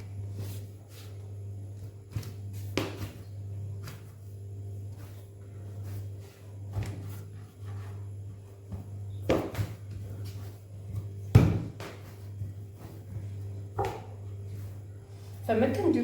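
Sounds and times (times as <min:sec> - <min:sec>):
steady low hum: 0:00.0 - 0:16.0
dull thuds of dough pressed: 0:01.5 - 0:05.1, 0:06.6 - 0:07.4, 0:08.1 - 0:14.5.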